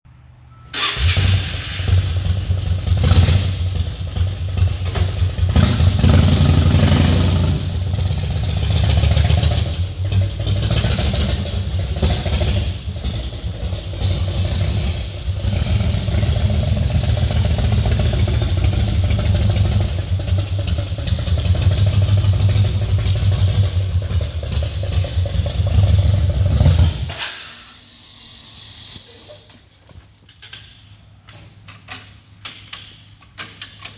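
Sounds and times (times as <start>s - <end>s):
motorcycle engine running: 1.9s - 27.1s.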